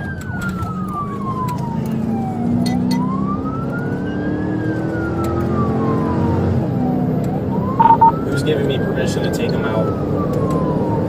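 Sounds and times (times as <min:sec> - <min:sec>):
car engine and road noise: 0:00.0 - 0:08.2
police siren wailing: 0:00.0 - 0:11.0.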